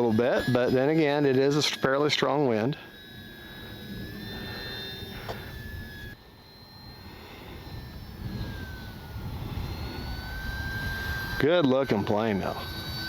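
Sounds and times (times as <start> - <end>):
electric motor and propeller whining: 0.0 - 13.0
wind rumbling on microphone: 6.8 - 13.0.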